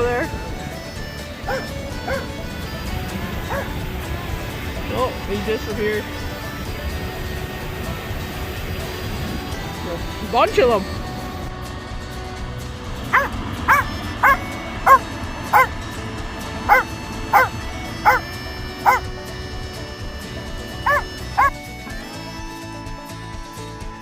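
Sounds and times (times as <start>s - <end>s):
background music: 0.0s - 24.0s
dog barking in short yips: 13.2s - 15.0s.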